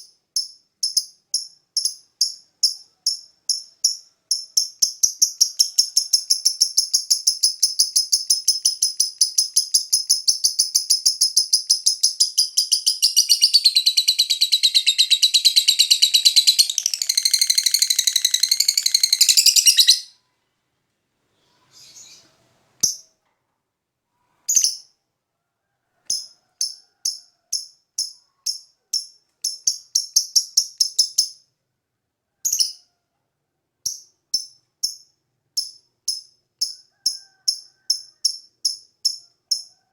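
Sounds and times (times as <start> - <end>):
lovebird chirping: 0.0 - 20.3, 21.4 - 23.1, 27.5 - 31.4.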